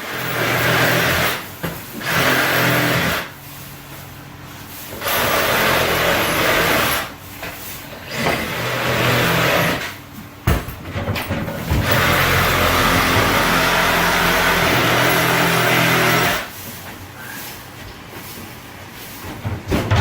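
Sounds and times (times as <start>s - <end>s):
power tool motor running: 2.0s - 3.3s, 5.0s - 7.1s, 8.1s - 9.8s, 11.8s - 16.5s.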